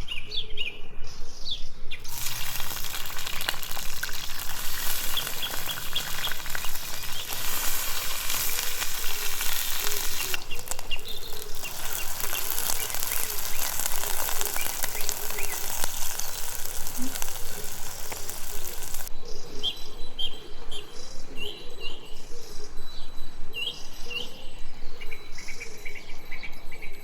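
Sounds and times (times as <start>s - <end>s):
birds chirping: 0.0s - 27.0s
food sizzling in a pan: 2.0s - 19.1s.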